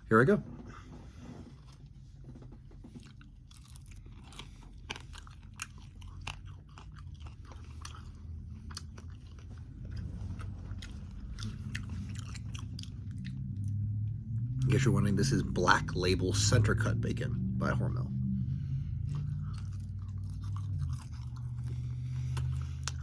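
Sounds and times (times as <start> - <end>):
crunchy bacon chewing: 2.8 - 13.8, 19.0 - 23.0.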